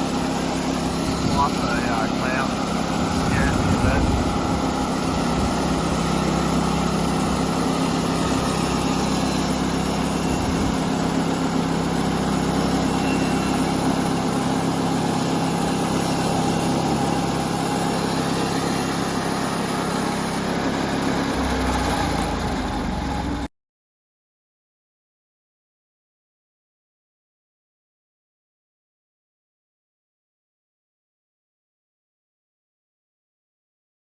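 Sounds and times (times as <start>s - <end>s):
sawmill gas engine running: 0.0s - 23.5s.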